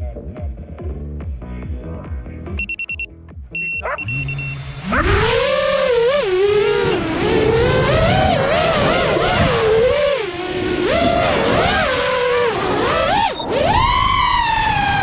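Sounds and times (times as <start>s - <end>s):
drone motors whining: 3.6s - 15.0s.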